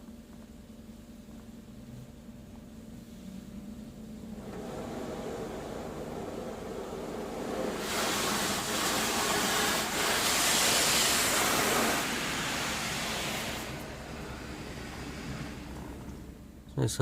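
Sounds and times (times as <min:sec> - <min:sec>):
water jets drumming on car: 0:04.3 - 0:16.5.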